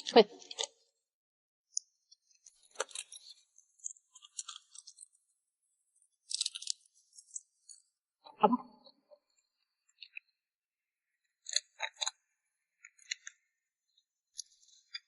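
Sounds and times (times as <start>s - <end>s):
crab shell crunching while chewing: 6.2s - 7.8s.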